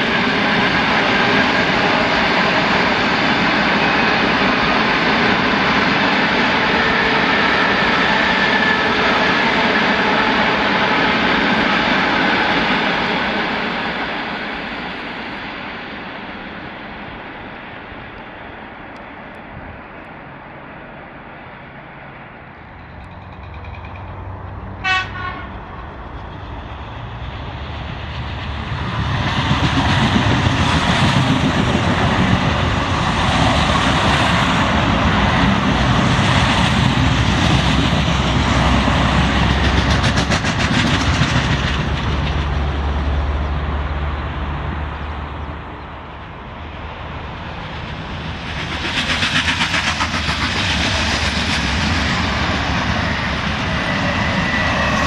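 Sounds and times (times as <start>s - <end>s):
train rumbling past: 0.0s - 55.0s
train horn toot: 24.8s - 25.8s.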